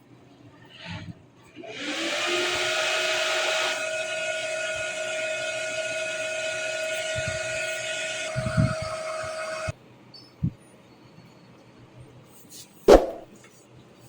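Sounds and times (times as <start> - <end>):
computer cooling fans whirring: 2.0 - 9.8.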